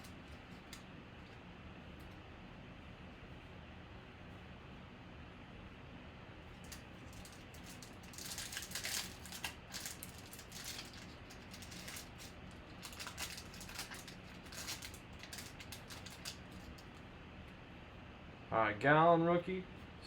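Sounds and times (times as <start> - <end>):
cards and packaging rustling: 6.6 - 17.0.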